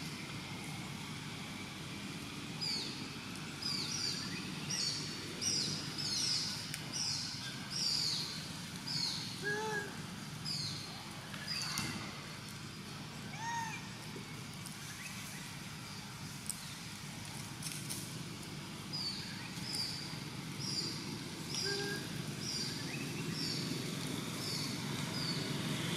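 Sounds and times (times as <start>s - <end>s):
low outdoor background noise: 0.0s - 25.9s
bird calling high notes: 21.5s - 22.2s.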